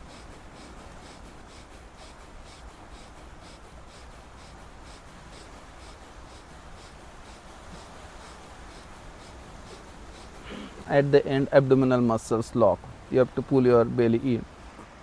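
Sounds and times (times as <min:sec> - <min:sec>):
forceful exhalations through nose: 0:00.0 - 0:11.6.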